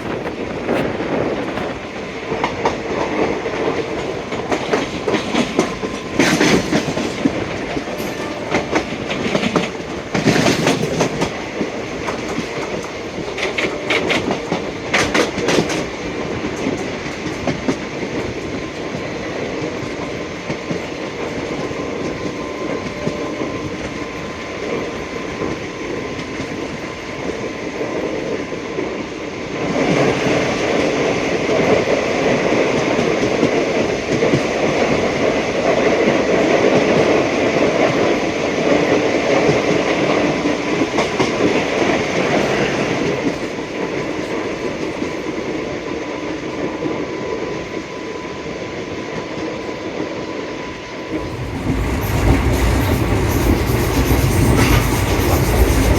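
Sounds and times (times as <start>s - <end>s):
passenger train rumbling on track: 0.0s - 55.9s
wheel-on-rail noise: 51.1s - 55.9s.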